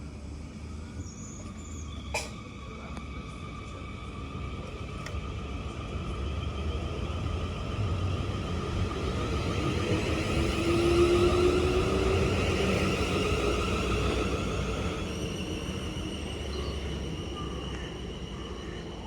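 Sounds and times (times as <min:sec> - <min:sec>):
train rumble and whine: 0:00.0 - 0:19.0.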